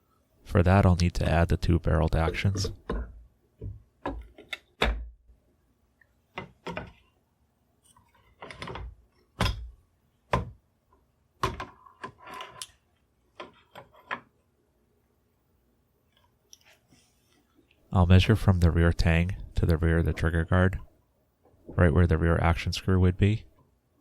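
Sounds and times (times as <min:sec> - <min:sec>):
metal and wood knocking: 0:02.1 - 0:05.1.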